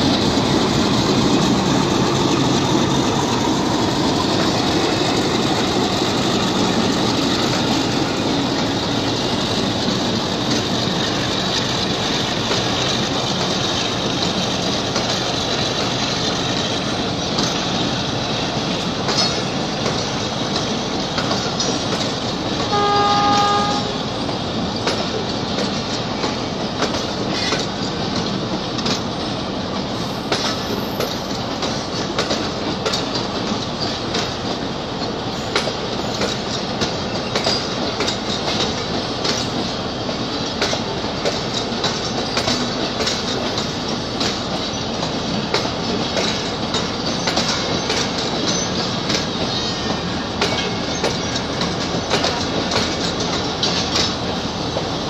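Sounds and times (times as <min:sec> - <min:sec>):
train rumble: 0:00.0 - 0:55.0
train wheels clacking over rail joints: 0:00.0 - 0:55.0
train horn: 0:22.7 - 0:24.1.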